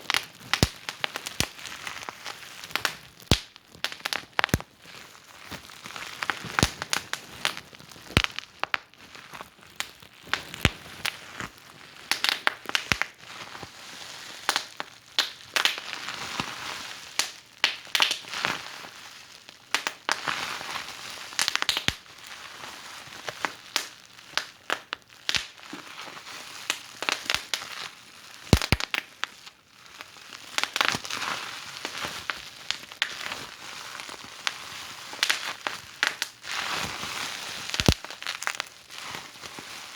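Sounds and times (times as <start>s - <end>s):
soft hiss of burning: 0.0s - 8.8s, 31.8s - 39.9s
wood fire crackling and popping: 0.0s - 13.2s, 14.5s - 16.0s, 17.2s - 18.3s, 19.7s - 20.3s, 21.3s - 22.1s, 23.3s - 25.8s, 26.7s - 27.7s, 28.4s - 29.3s, 30.6s - 31.1s, 31.8s - 38.8s.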